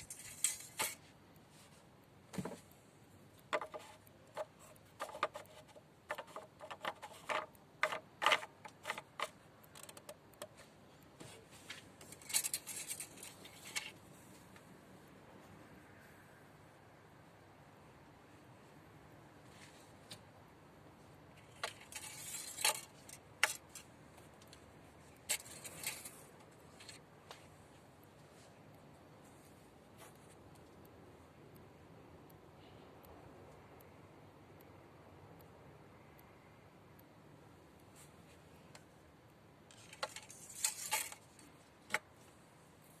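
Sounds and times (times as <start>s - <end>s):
scratchy rustle: 0.0s - 2.5s, 3.6s - 14.5s
sharp clicks of small objects: 2.7s - 11.2s.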